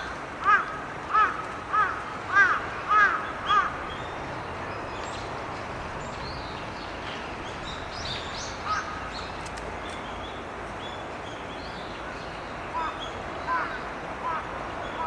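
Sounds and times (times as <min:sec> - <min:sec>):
crow cawing: 0:00.5 - 0:03.7.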